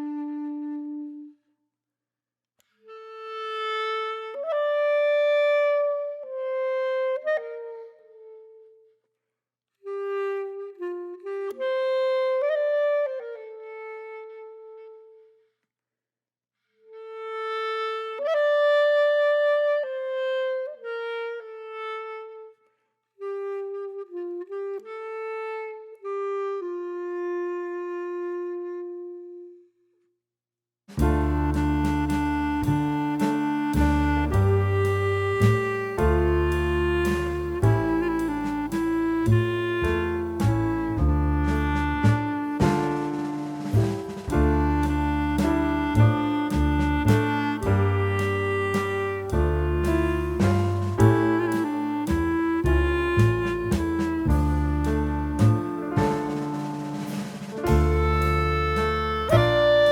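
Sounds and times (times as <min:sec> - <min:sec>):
woodwind slow melody: 0:00.0 - 0:01.4, 0:09.9 - 0:15.2, 0:23.2 - 0:29.6, 0:31.0 - 0:59.9.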